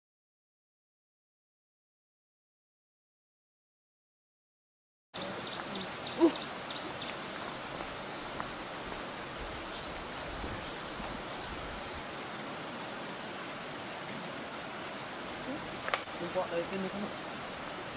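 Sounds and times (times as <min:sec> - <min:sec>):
birds calling: 0:05.2 - 0:12.3
steady hiss: 0:05.2 - 0:17.9
loud bird hoot: 0:05.7 - 0:07.1.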